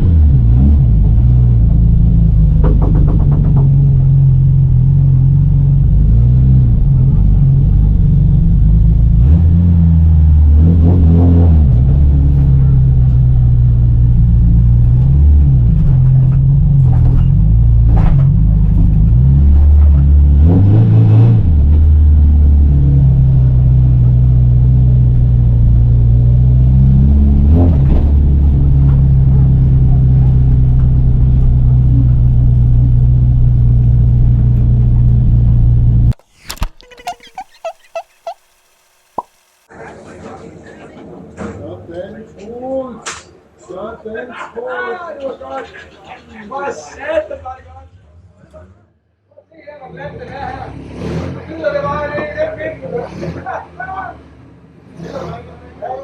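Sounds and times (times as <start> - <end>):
race car engine under load: 0.0 - 39.7.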